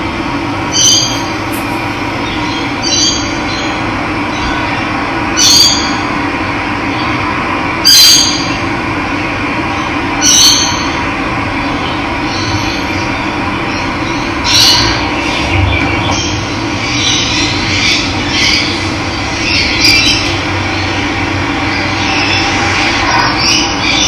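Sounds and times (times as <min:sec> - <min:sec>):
short high bird call: 0:00.6 - 0:03.2.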